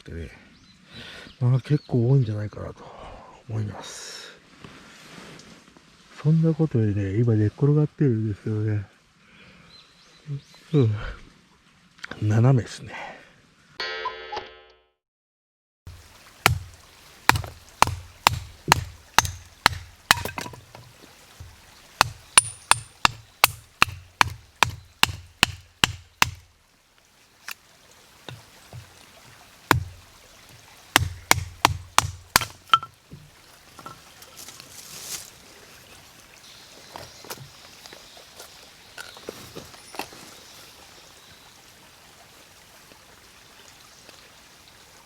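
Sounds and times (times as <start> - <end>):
tool striking something solid: 17.3 - 26.4, 29.7 - 30.0, 31.0 - 34.0.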